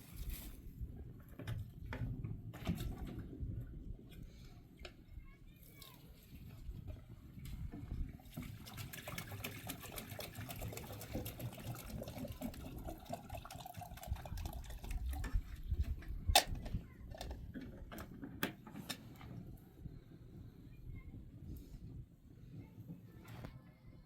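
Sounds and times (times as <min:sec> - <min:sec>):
liquid pouring and splashing: 0:07.9 - 0:16.0.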